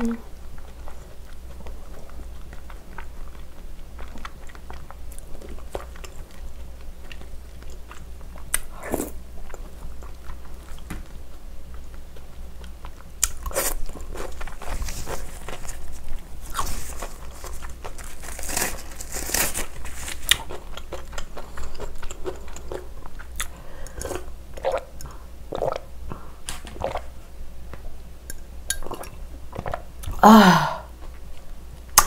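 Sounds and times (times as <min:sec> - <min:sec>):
crunchy biting and chewing: 0:11.7 - 0:24.8
person gulping juice: 0:20.9 - 0:27.1, 0:28.7 - 0:31.0
woman sighing: 0:30.2 - 0:30.9.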